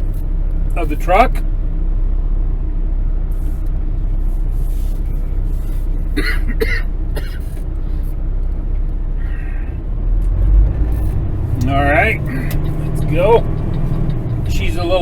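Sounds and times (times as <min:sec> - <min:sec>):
diesel truck engine idling: 0:00.0 - 0:15.0
person coughing: 0:06.2 - 0:07.5.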